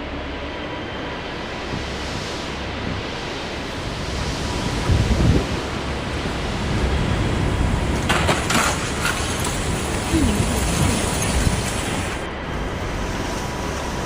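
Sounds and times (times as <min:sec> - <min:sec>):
floodwater rushing: 0:05.6 - 0:12.3.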